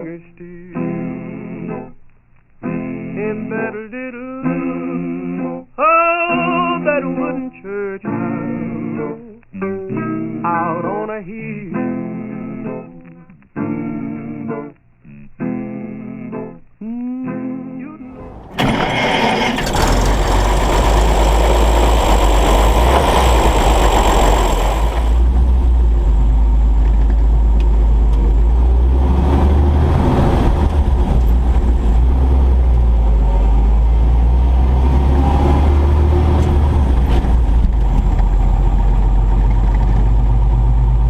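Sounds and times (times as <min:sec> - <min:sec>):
truck engine running: 0:18.1 - 0:41.0.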